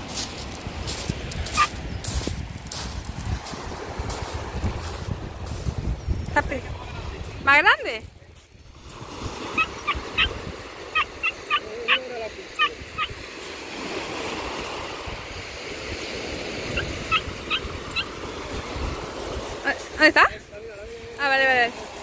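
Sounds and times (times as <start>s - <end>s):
short bird calls: 11.0s - 13.2s.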